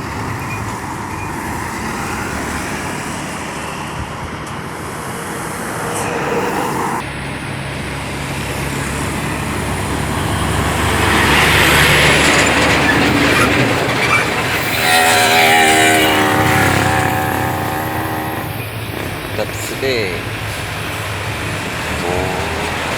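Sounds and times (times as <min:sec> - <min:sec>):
truck diesel engines labouring: 0:00.0 - 0:22.9
higher pitched drone: 0:14.2 - 0:22.9.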